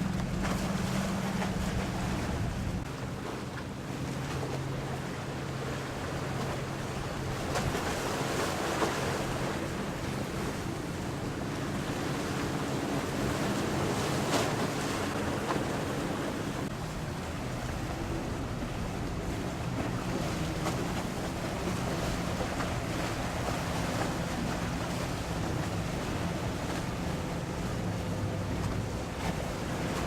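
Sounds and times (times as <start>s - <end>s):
wind buffeting microphone: 0.0s - 3.3s
motorboat engine droning: 0.0s - 30.0s
water and waves rushing: 0.0s - 30.0s.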